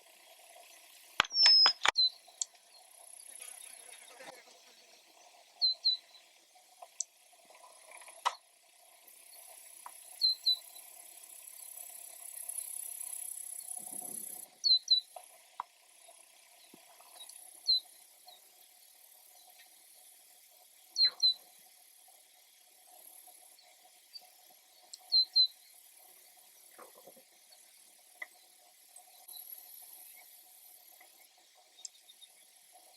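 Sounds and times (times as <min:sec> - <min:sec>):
high steady hiss: 0:00.0 - 0:32.9
bird chirping: 0:00.7 - 0:03.9, 0:04.8 - 0:06.3, 0:10.2 - 0:10.9, 0:13.5 - 0:15.2, 0:21.0 - 0:21.5, 0:23.6 - 0:25.8.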